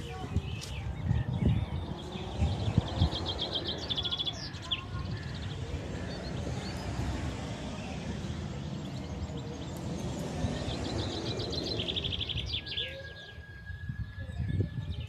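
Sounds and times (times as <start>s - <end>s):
birds chirping: 0.0s - 15.0s
constant low rumble: 0.0s - 15.0s
long whistled bird note: 10.5s - 15.0s.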